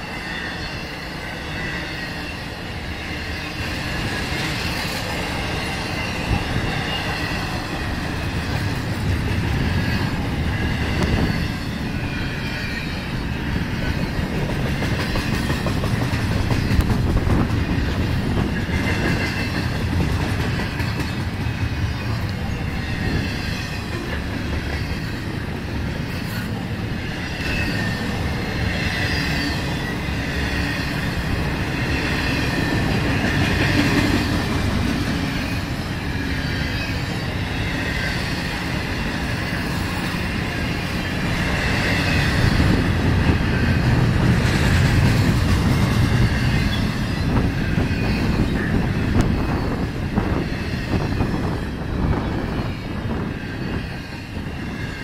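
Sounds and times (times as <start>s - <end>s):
high wheel squeal: 0.0s - 14.5s, 20.7s - 34.4s, 45.4s - 55.0s
train wheels rumbling on rails: 0.0s - 55.0s.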